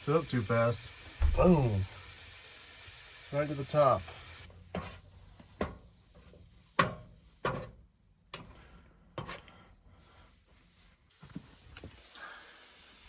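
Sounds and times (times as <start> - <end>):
sharp knocks and clunks: 1.2 - 2.0.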